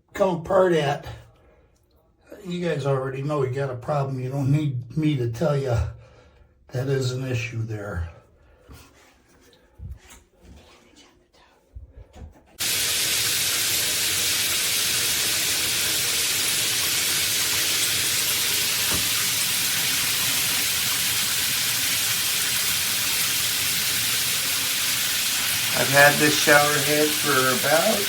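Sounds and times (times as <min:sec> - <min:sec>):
shower head spraying water: 0:12.6 - 0:28.0.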